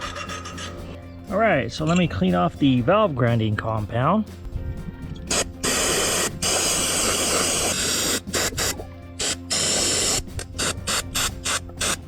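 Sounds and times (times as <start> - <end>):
aerosol spray hissing: 5.3 - 12.0.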